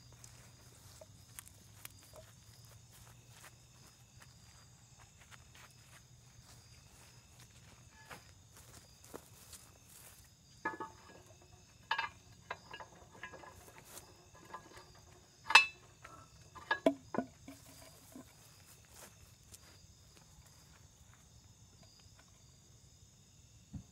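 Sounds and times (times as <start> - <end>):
metal clanks and knocks: 10.6 - 18.3.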